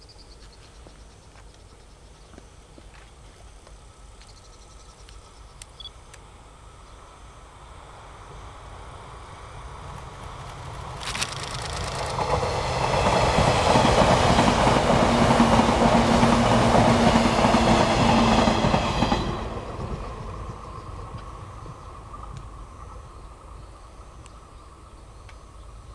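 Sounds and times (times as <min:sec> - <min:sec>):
steady train hum: 0:00.0 - 0:25.9
train rumble: 0:06.3 - 0:25.9
train wheel clatter: 0:09.8 - 0:23.0
sharp wheel clicks: 0:10.9 - 0:12.3.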